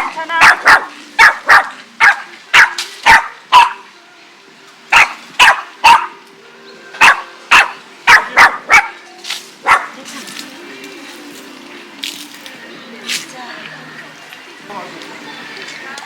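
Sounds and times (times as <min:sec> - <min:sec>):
dog barking: 0:00.0 - 0:03.8, 0:04.9 - 0:06.2, 0:07.0 - 0:09.0, 0:09.6 - 0:10.0.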